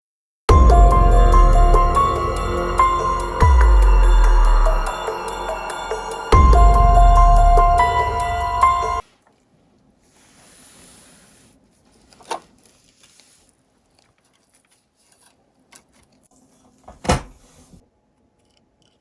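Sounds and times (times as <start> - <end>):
soft rubbing: 9.0 - 16.8.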